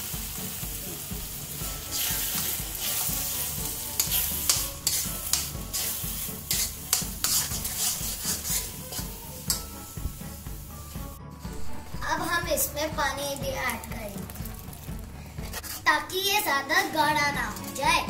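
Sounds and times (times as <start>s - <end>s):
paste sizzling in pan: 0.0s - 17.0s
metal spoon scraping pan: 1.9s - 9.8s, 15.4s - 16.0s.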